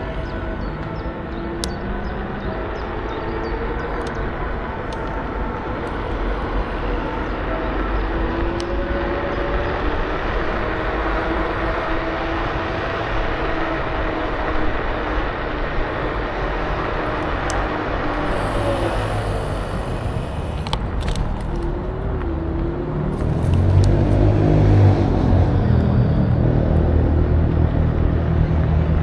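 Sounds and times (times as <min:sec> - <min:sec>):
road rumble: 0:00.0 - 0:29.0
wind rush: 0:18.1 - 0:21.4
electric motor whine: 0:18.1 - 0:21.8.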